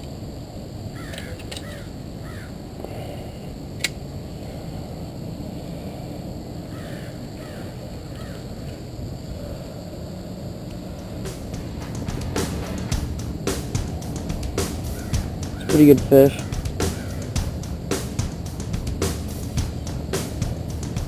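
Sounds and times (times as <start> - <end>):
low background noise: 0.0 - 21.0
bird harsh calls: 14.1 - 21.0.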